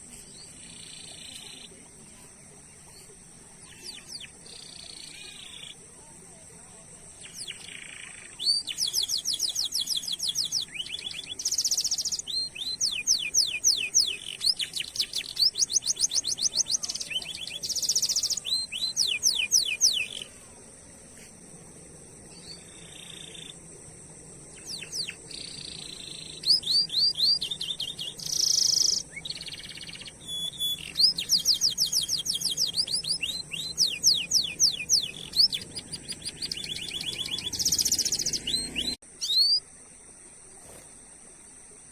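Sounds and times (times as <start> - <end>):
canary singing trills: 2.8 - 5.8, 7.0 - 20.3, 22.3 - 23.7, 24.4 - 39.6.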